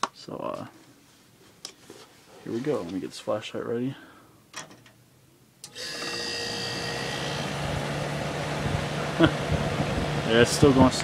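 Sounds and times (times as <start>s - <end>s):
dehumidifier humming: 5.6s - 11.0s.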